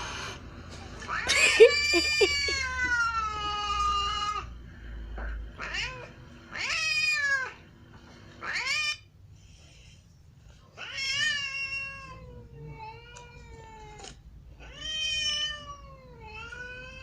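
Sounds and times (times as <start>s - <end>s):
cat meowing: 10.8s - 17.0s.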